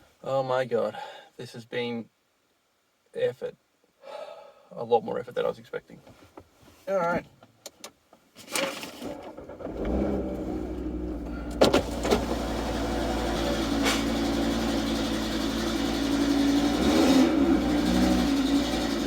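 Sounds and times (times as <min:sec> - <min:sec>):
car engine starting and idling: 0:08.6 - 0:19.0.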